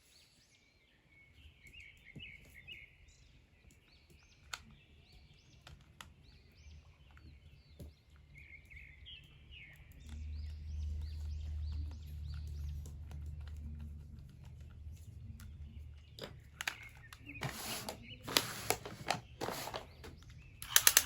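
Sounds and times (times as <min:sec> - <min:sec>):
small birds chirping: 0:00.0 - 0:21.0
light clicks: 0:07.0 - 0:21.0.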